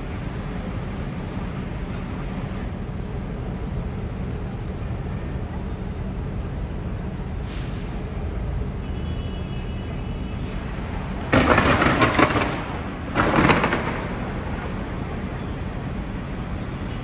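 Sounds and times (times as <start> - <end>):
fireworks crackling: 10.3 - 17.0.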